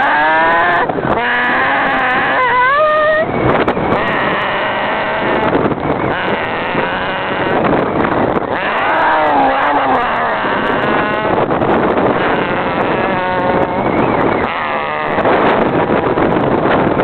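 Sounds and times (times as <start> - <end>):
pitched wail: 0.0 - 3.4, 8.5 - 11.5
wind buffeting microphone: 0.0 - 17.0.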